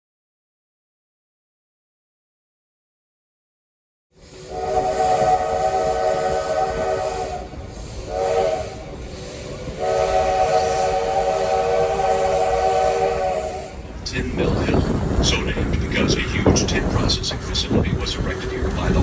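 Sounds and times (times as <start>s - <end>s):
steam locomotive chime whistle: 4.2s - 13.8s
steady steam hiss: 4.2s - 19.0s.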